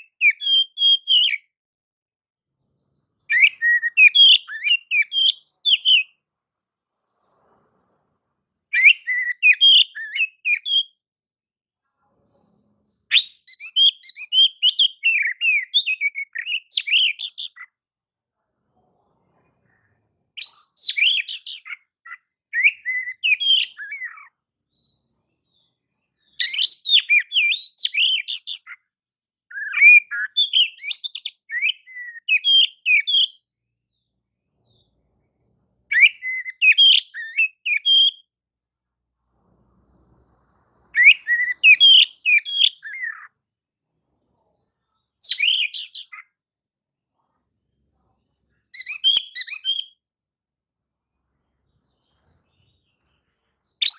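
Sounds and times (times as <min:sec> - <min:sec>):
bird singing whistles and chatter: 0:03.3 - 0:06.1, 0:08.7 - 0:10.9, 0:13.1 - 0:17.7, 0:20.4 - 0:21.8, 0:22.6 - 0:24.3, 0:26.4 - 0:28.8, 0:29.5 - 0:33.4, 0:35.9 - 0:38.2, 0:41.0 - 0:43.2, 0:45.2 - 0:46.3, 0:48.8 - 0:50.0.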